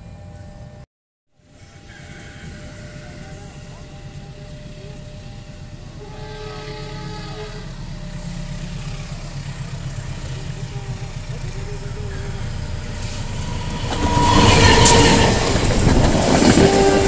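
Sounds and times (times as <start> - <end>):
train rumbling on rails: 1.4 - 17.0
train horn chord: 1.6 - 8.3, 12.2 - 17.0.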